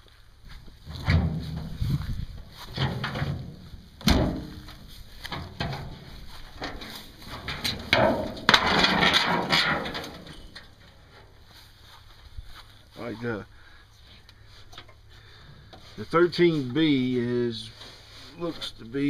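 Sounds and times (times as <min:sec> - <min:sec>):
scraping and rustling on car body: 0:00.5 - 0:13.2, 0:15.6 - 0:19.0
sharp knocks and clunks: 0:00.9 - 0:01.9, 0:02.6 - 0:10.8.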